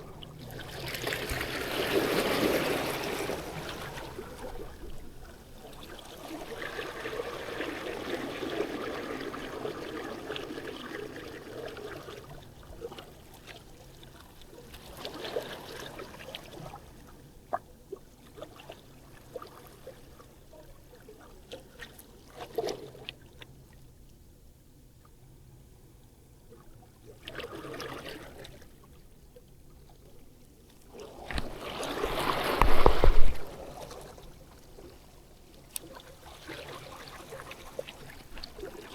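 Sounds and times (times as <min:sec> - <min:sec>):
water washing at shoreline: 0:00.0 - 0:17.0, 0:30.9 - 0:38.9.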